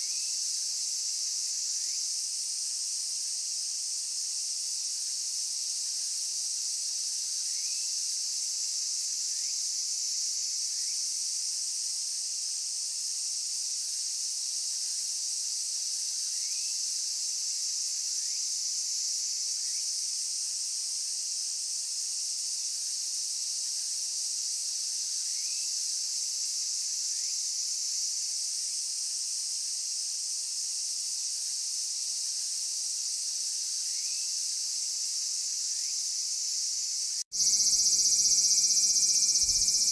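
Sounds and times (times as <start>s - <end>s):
insects trilling: 0.0s - 2.2s, 7.4s - 8.0s, 8.8s - 11.1s, 14.6s - 20.0s, 25.0s - 28.5s, 30.6s - 39.9s.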